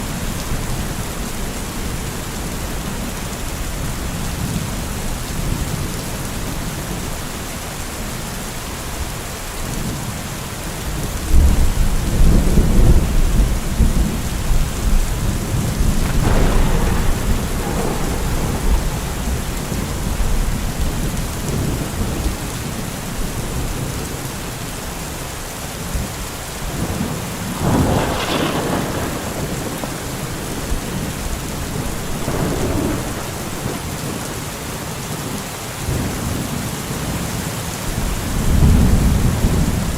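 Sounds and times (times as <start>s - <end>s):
steady rain: 0.0s - 39.9s
rolling thunder: 11.2s - 24.1s, 25.9s - 36.5s, 37.9s - 39.9s.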